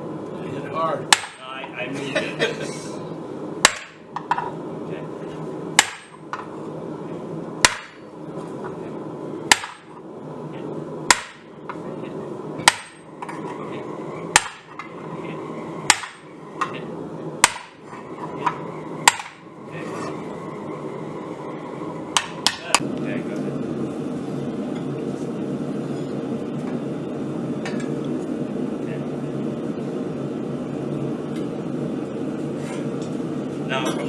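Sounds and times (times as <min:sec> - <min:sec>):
hammer striking hot steel: 0:01.1 - 0:01.6, 0:03.6 - 0:04.5, 0:05.8 - 0:06.5, 0:07.6 - 0:08.1, 0:09.5 - 0:10.0, 0:11.1 - 0:11.8, 0:12.6 - 0:13.6, 0:14.2 - 0:15.1, 0:15.8 - 0:16.8, 0:17.4 - 0:19.5, 0:22.1 - 0:22.8.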